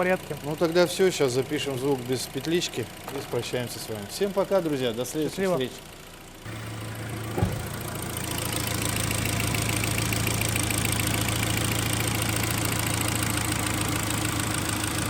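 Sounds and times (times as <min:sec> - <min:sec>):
car engine idling: 0:00.0 - 0:15.0
brief thump: 0:07.3 - 0:07.9.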